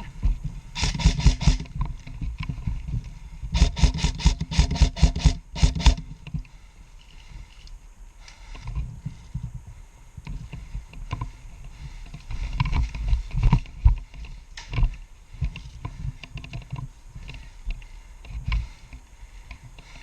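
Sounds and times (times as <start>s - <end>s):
sharp clicks: 0.8s - 1.8s, 3.6s - 6.0s.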